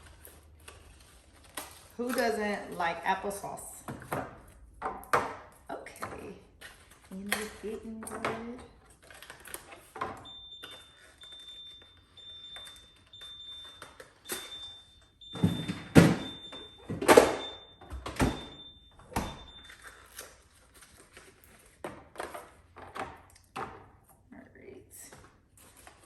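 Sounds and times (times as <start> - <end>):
refrigerator alarm beeping: 9.8 - 20.2
plastic bins clunking: 14.3 - 19.6.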